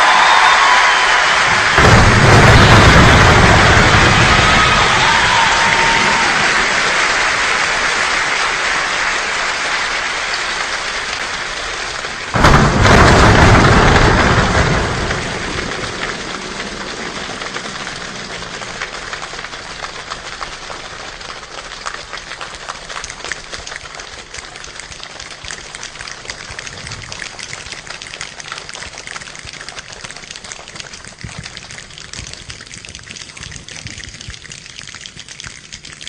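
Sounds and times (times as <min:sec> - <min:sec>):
steady rain: 0:00.0 - 0:36.0
thunder crash: 0:01.4 - 0:07.2, 0:12.3 - 0:19.1.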